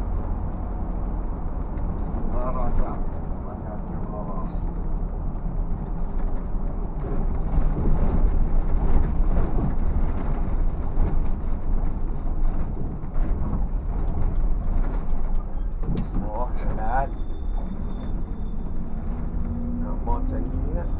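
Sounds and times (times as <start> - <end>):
bus engine and road rumble: 0.0 - 20.9
knocks and rattles: 5.7 - 19.5.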